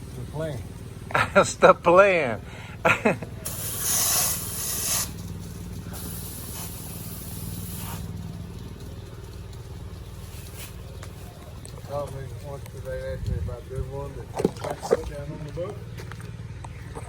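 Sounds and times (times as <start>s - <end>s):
duster hissing puffs: 0.0s - 15.2s
steady low hum: 0.0s - 17.0s.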